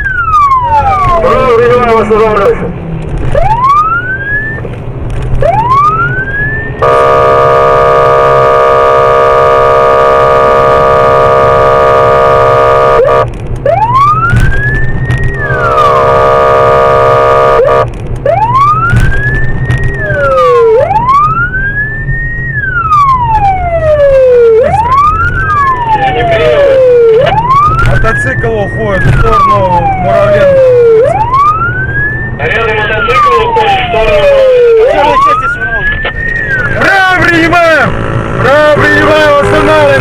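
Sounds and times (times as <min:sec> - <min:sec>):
police siren: 0:00.0 - 0:02.6, 0:03.2 - 0:40.0
engine humming: 0:00.0 - 0:40.0
horn blast: 0:06.8 - 0:13.3, 0:15.3 - 0:17.9.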